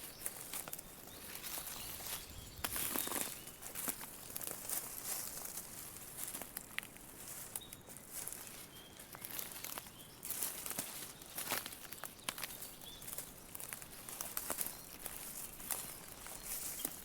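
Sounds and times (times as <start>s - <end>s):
faint bird chirps: 0.0s - 3.7s, 7.3s - 17.0s
dry leaves rustling: 0.0s - 17.0s.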